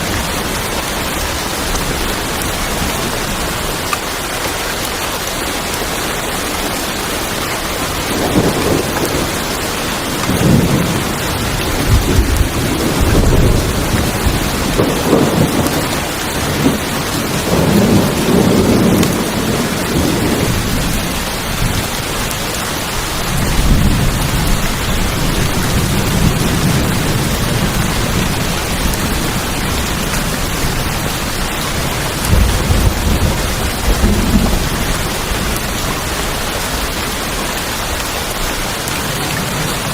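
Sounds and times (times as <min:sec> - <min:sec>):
rain on a tin roof: 0:00.0 - 0:39.9
thunder rumbling: 0:07.7 - 0:22.4, 0:23.0 - 0:39.9.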